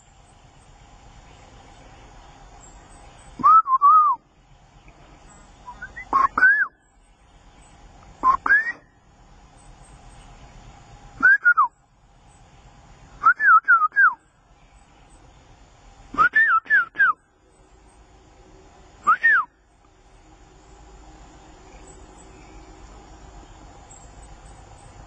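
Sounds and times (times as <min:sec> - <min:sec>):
bird whistling calls: 0:02.6 - 0:04.2, 0:05.3 - 0:09.0, 0:11.2 - 0:11.8, 0:13.2 - 0:15.2, 0:16.1 - 0:17.3, 0:19.0 - 0:19.7.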